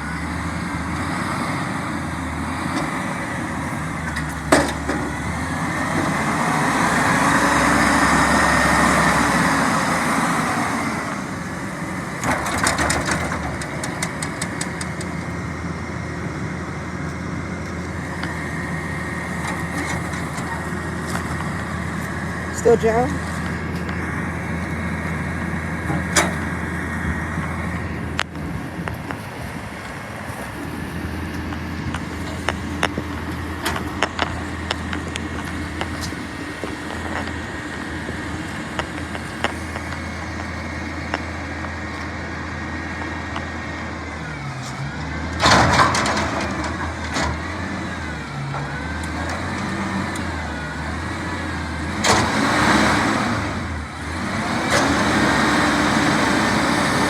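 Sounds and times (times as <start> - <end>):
garbage truck engine running: 0.0 - 57.0
knocks and clanks: 4.0 - 5.3, 12.2 - 15.4, 25.8 - 26.6, 45.4 - 50.3.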